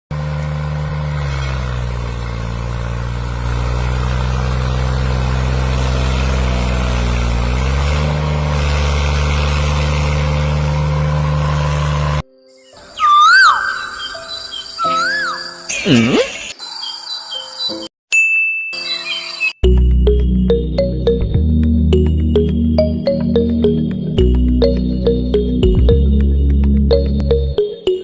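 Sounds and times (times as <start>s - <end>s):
engine running: 0.1s - 12.2s, 19.6s - 28.0s.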